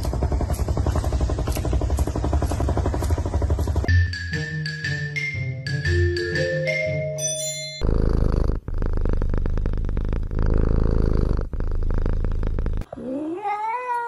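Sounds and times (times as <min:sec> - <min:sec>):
mallet percussion music: 0:03.9 - 0:07.9
kitten purring loudly: 0:07.8 - 0:13.9
cat meowing: 0:13.1 - 0:14.0.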